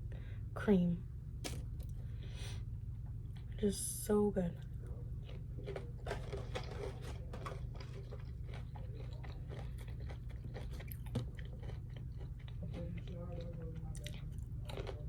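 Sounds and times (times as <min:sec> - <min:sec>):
steady low hum: 0:00.0 - 0:15.0
chewing and crunching food: 0:01.4 - 0:03.7, 0:04.5 - 0:15.0.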